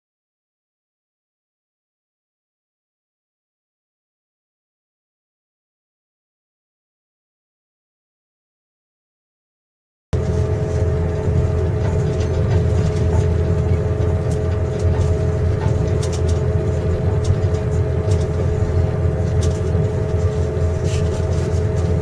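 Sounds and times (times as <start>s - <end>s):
train carriage rumble: 10.2s - 22.0s.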